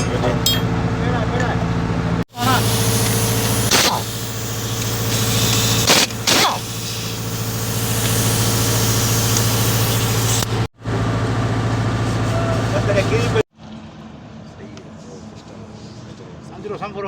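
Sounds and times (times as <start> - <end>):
engine idling: 0.0 - 13.4
short sharp clicks: 3.0 - 4.1, 4.8 - 7.0.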